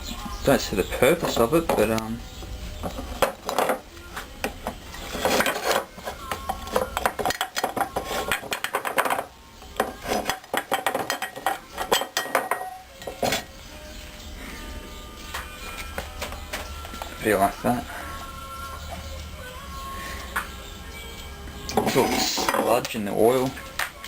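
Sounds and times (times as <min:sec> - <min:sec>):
metal parts clinking and knocking: 0:09.9 - 0:13.5.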